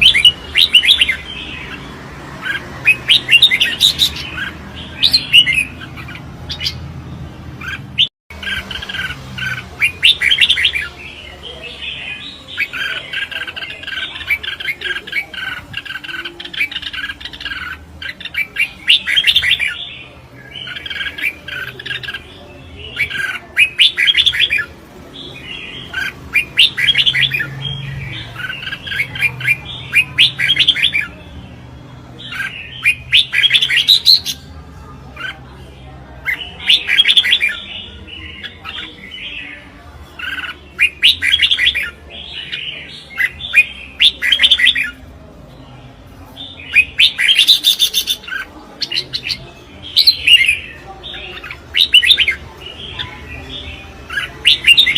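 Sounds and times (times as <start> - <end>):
bird chirping song: 0.0 - 54.9.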